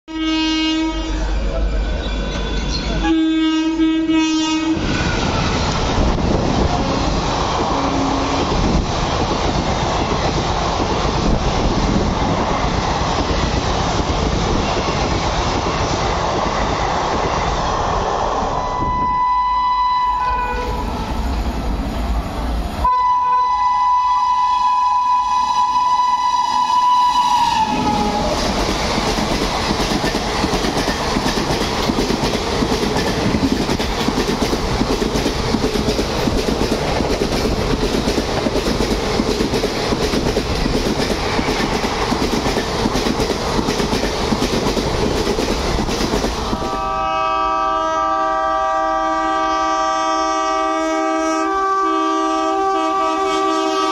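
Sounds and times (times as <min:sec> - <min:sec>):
multi-tone horn: 0:00.1 - 0:01.4, 0:03.0 - 0:04.9, 0:07.8 - 0:08.5, 0:18.7 - 0:21.1, 0:22.8 - 0:28.2, 0:46.5 - 0:53.9
train horn long blast: 0:00.1 - 0:01.5, 0:02.9 - 0:04.9, 0:06.7 - 0:08.6, 0:18.6 - 0:21.2, 0:22.8 - 0:28.4, 0:46.4 - 0:53.9
train passing with rail noise: 0:00.1 - 0:53.9.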